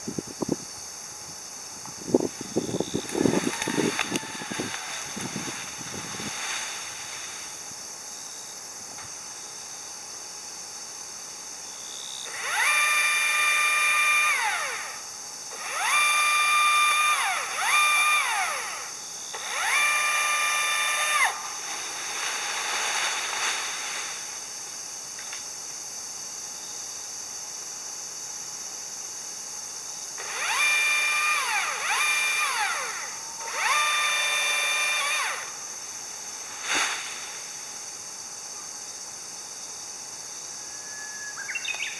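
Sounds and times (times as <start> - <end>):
power tool motor whirring: 2.4 - 7.4, 12.3 - 22.8, 30.2 - 35.6.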